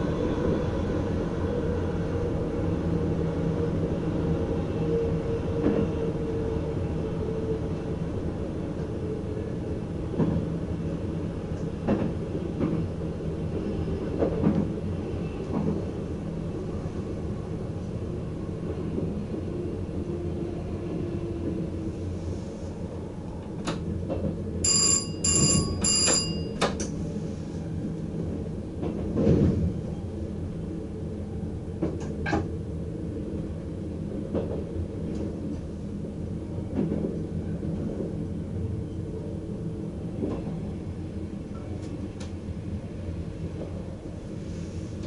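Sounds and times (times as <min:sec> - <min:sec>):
electric train rumbling: 0:00.0 - 0:45.0
bell-like signal ringing: 0:24.7 - 0:26.6.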